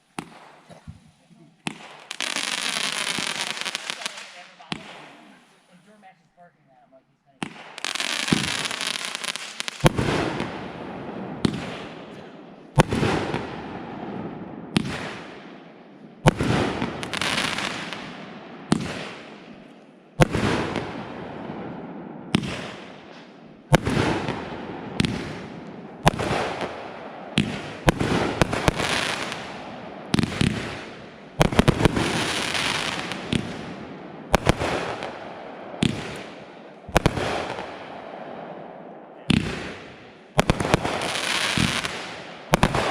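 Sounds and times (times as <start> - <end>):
fireworks banging: 0.0 - 6.2, 7.3 - 42.9
fireworks crackle and hiss: 0.0 - 6.2, 7.4 - 10.5, 16.2 - 18.2, 25.0 - 26.8, 27.4 - 35.2, 35.8 - 37.8, 39.4 - 42.9.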